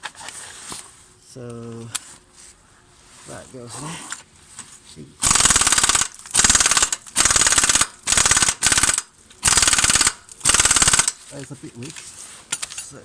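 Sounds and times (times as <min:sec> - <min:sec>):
impact wrench hammering: 0:05.2 - 0:11.2.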